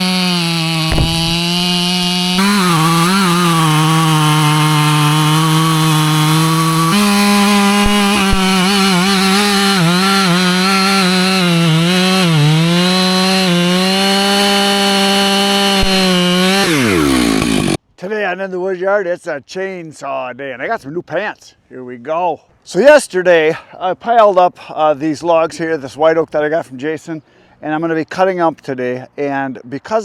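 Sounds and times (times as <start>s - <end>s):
chainsaw cutting wood: 0.0s - 17.8s.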